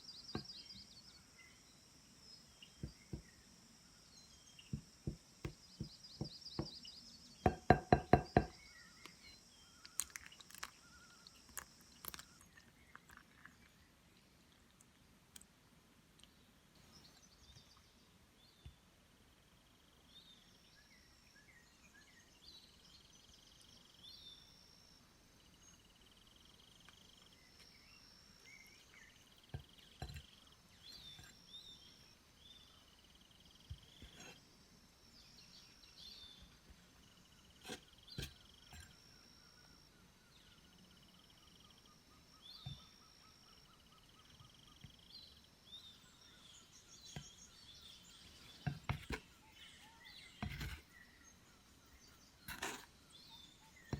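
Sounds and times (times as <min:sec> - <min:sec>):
faint birdsong: 0:00.0 - 0:53.9.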